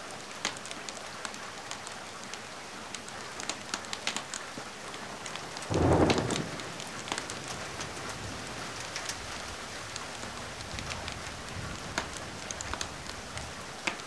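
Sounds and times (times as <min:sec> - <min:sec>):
steady rain: 0:00.0 - 0:14.0
wood fire crackling: 0:00.3 - 0:14.0
thunder clap: 0:05.7 - 0:08.8.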